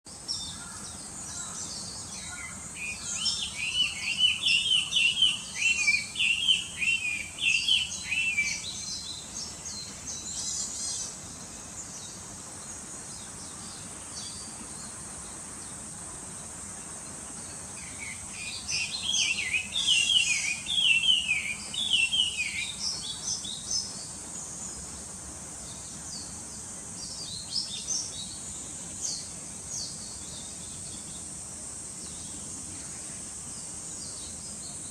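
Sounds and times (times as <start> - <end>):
steady high hiss: 0.1 - 34.9
birds chirping: 0.4 - 11.2, 17.6 - 24.2.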